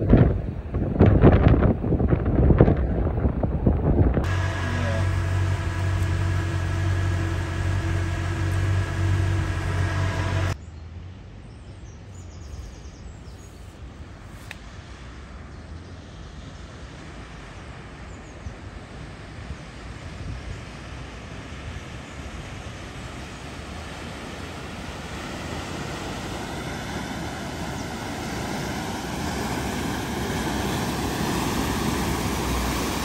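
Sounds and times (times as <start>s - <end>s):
vehicle engine idling: 4.2s - 10.6s, 25.8s - 33.0s
vehicle splashing through floodwater: 4.3s - 10.6s, 22.4s - 33.0s.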